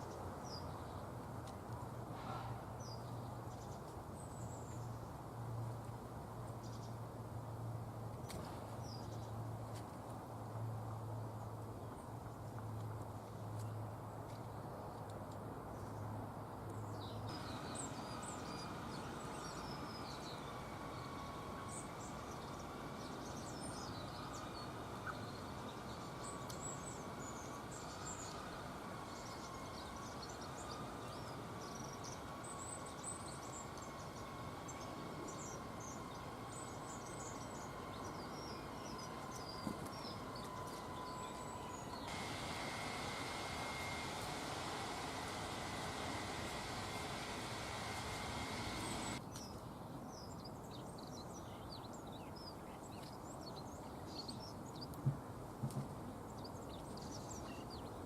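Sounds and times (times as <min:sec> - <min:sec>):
steady background hum: 0:16.5 - 0:49.2
small birds chirping: 0:16.7 - 0:55.0.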